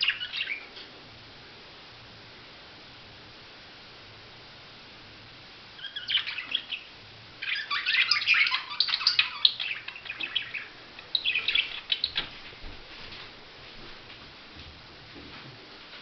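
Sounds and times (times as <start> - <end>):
budgerigar chattering: 0.0 - 0.7, 5.8 - 12.2.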